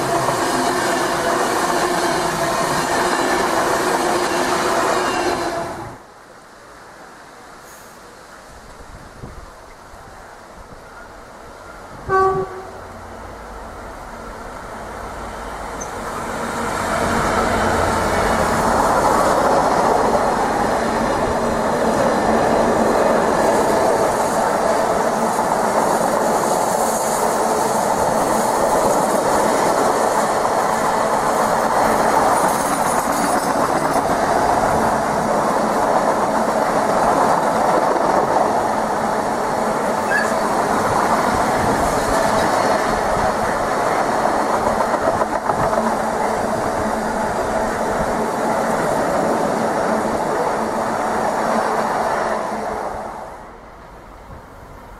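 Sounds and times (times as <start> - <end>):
train horn toot: 0.0 - 6.0, 12.0 - 13.0
train wheels clattering on track: 15.7 - 38.7, 40.0 - 46.8.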